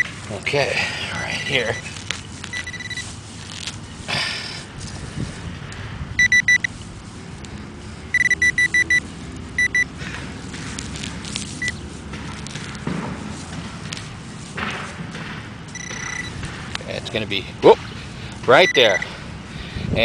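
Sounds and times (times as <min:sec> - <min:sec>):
dirt scraping: 0:00.0 - 0:05.4, 0:09.0 - 0:17.3
metal detector beeps: 0:02.5 - 0:03.1, 0:06.2 - 0:06.7, 0:08.1 - 0:09.9, 0:15.7 - 0:16.3, 0:18.5 - 0:19.1.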